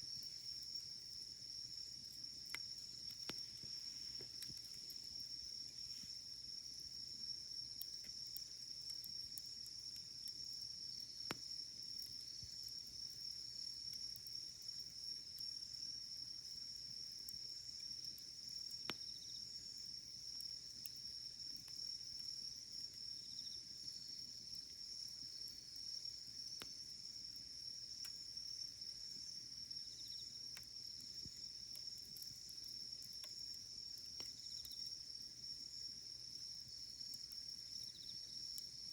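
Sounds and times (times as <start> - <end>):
campfire crackling: 0.0 - 38.9
insects chirring: 0.0 - 38.9.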